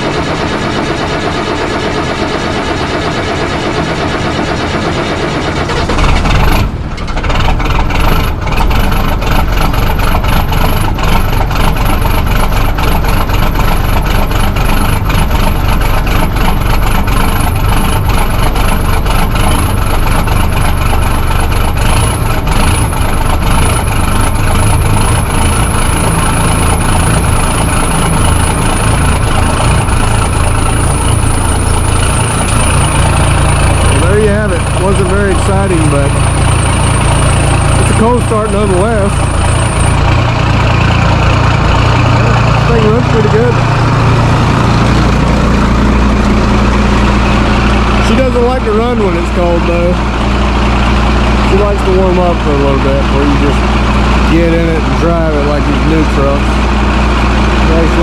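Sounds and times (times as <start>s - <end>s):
diesel engine starting and idling: 0.0s - 58.0s.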